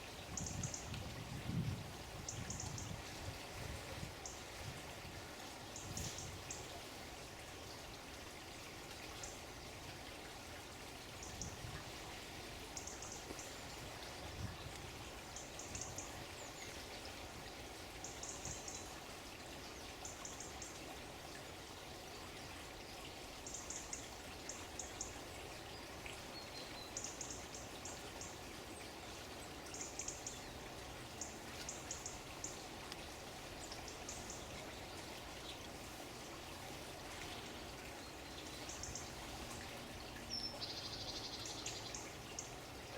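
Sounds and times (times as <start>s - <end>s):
running water: 0.0s - 42.9s.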